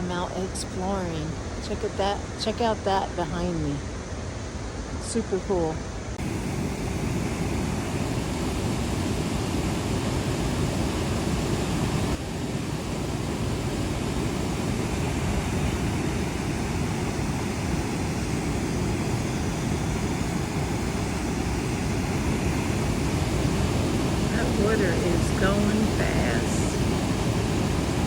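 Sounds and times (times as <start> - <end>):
waterfall roaring: 6.2 - 28.0.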